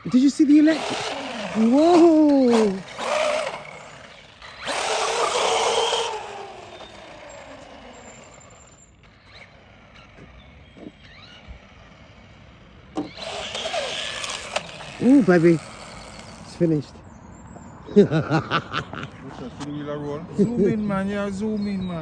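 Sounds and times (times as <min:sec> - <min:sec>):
electric toy car motor whine: 0:00.0 - 0:16.8.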